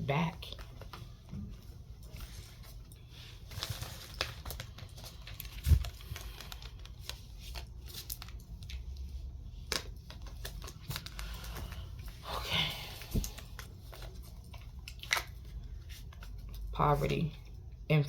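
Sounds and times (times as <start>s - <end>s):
cards rustling and clicking: 2.0s - 12.2s.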